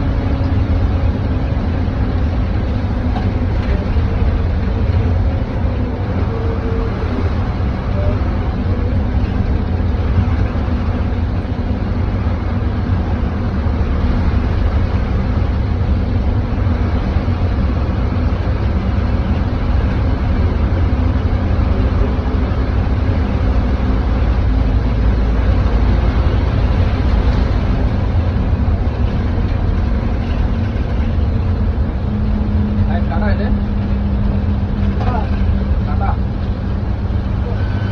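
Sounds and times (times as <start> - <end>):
rain and road noise hiss: 0.0 - 37.4
bus engine rumbling: 0.0 - 37.9.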